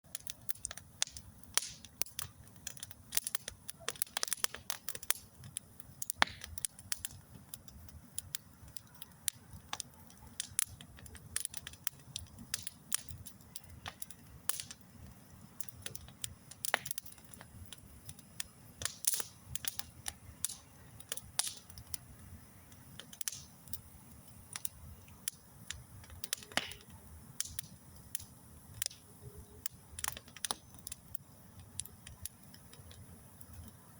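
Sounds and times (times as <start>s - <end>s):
low rumble of flames: 0.0s - 33.9s
wood fire crackling and popping: 0.1s - 33.9s.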